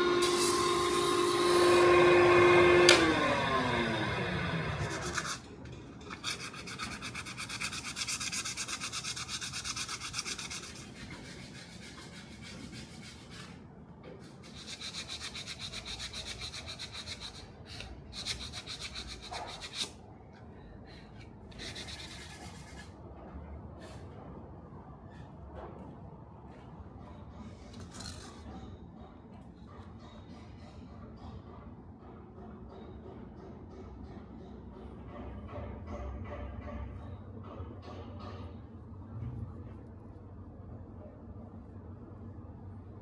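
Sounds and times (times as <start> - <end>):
machine whine winding down: 0.0 - 5.4
scraping strokes on knife: 4.7 - 23.0.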